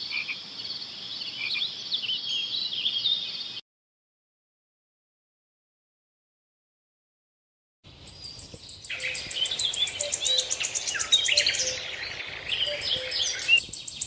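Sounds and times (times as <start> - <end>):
birds chirping and calling: 0.0 - 3.6, 7.9 - 14.0.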